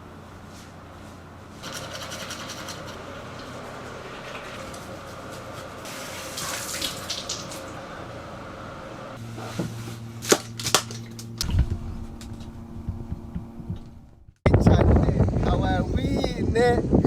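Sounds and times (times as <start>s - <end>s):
steady low hum: 0.0s - 17.0s
water running: 3.2s - 7.8s.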